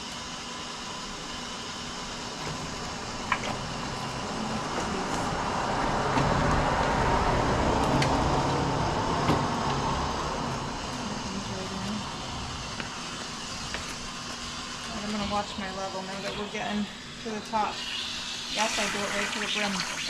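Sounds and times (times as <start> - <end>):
water running into a container: 14.6 - 20.0.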